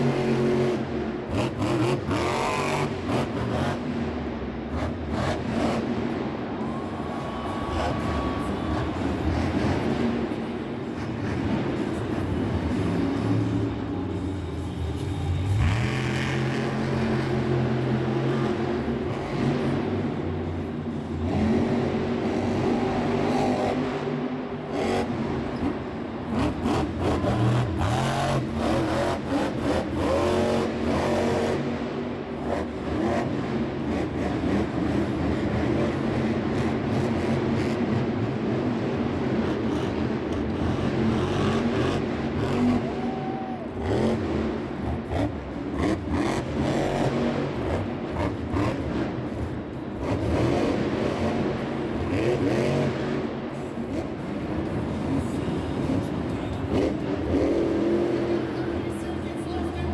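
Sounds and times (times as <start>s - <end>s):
truck engine revving: 15.0s - 43.0s, 43.8s - 58.8s.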